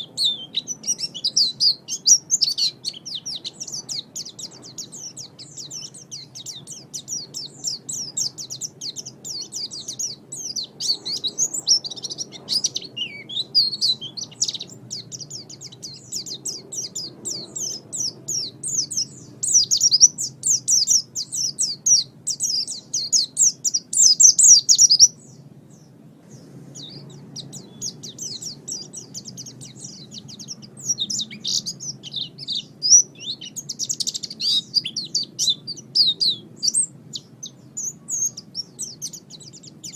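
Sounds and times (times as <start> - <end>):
bird twittering chirps: 0.0 - 39.9.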